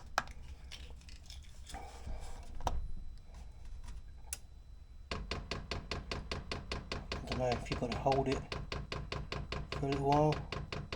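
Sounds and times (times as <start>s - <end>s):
fuel pump ticking rapidly: 5.1s - 10.9s.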